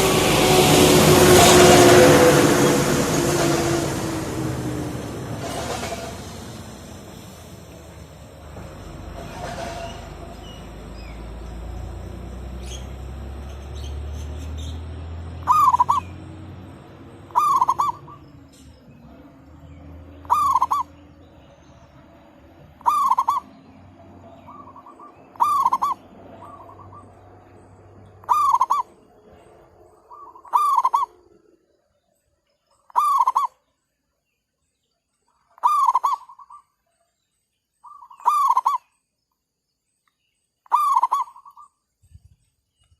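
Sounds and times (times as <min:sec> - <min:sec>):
dove cooing: 0:15.4 - 0:16.1, 0:17.3 - 0:18.2, 0:20.2 - 0:20.9, 0:22.8 - 0:23.5, 0:24.5 - 0:27.0, 0:28.2 - 0:28.9, 0:30.1 - 0:31.2, 0:33.0 - 0:33.5, 0:35.6 - 0:36.4.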